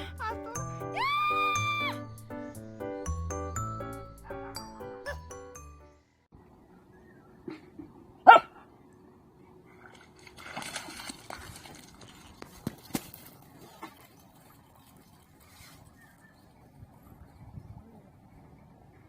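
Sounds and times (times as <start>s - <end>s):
dog barking: 8.2s - 8.6s.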